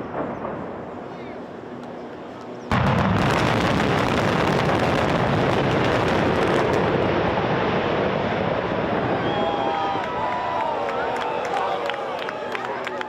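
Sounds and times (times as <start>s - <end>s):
building collapse rumble: 2.7s - 12.2s
onlookers whistling: 9.1s - 13.0s.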